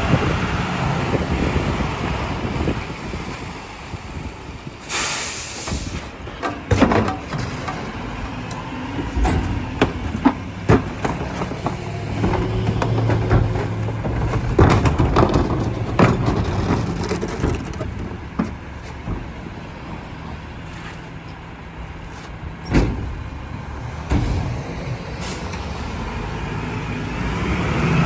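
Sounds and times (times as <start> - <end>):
truck engine drone: 0.0 - 28.0
trash cracking and crunching: 5.8 - 21.0.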